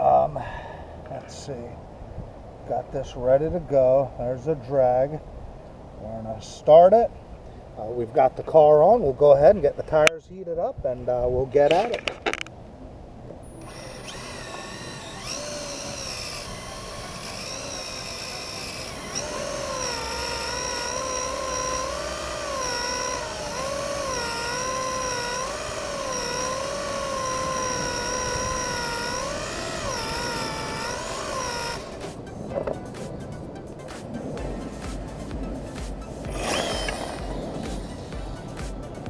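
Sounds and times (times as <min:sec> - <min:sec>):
electric motor whining: 0:13.4 - 0:32.8, 0:34.4 - 0:39.0.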